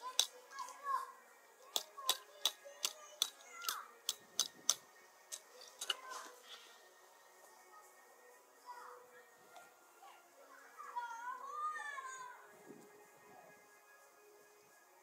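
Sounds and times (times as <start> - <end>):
sharp clicks: 1.7 - 6.0.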